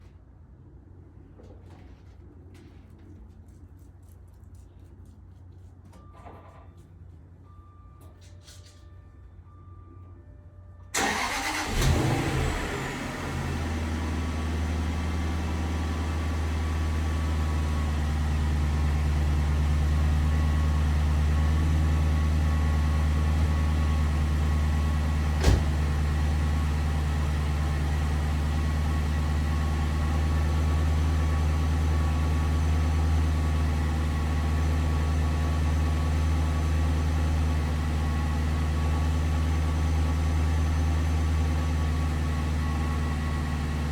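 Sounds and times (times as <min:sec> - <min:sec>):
car engine starting and idling: 0:10.9 - 0:43.9.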